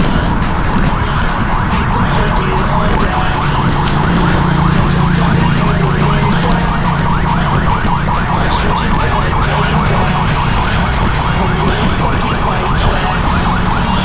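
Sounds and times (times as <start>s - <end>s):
rising siren whine: 0.0s - 14.0s.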